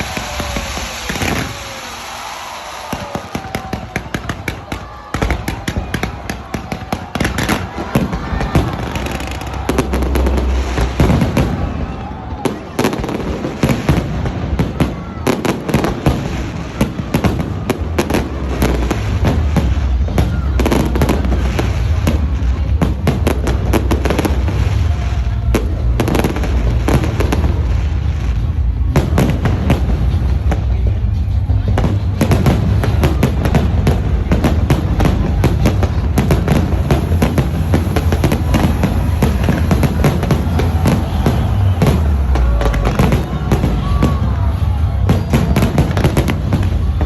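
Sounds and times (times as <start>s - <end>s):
crowd voices: 0.0s - 47.0s
fireworks bangs and crackles: 0.0s - 47.0s
low rumble: 33.6s - 45.1s.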